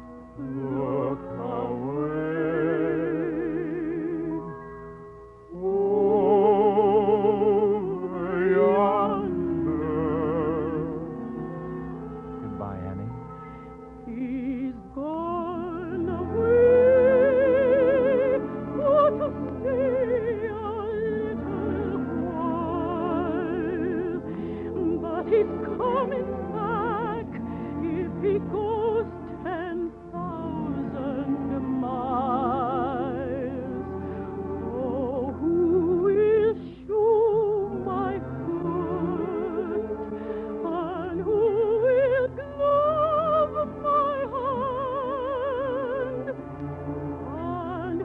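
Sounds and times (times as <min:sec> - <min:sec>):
operatic singing: 0:00.4 - 0:04.5, 0:05.5 - 0:11.8, 0:14.0 - 0:48.0
orchestral accompaniment: 0:06.0 - 0:48.0.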